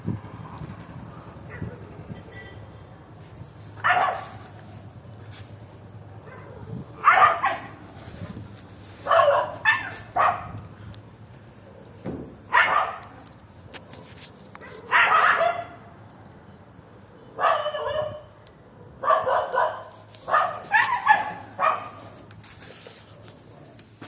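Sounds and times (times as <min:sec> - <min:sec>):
dog barking: 0:03.8 - 0:04.5, 0:06.2 - 0:07.8, 0:09.0 - 0:10.6, 0:12.5 - 0:13.1, 0:14.6 - 0:15.8, 0:17.3 - 0:22.1.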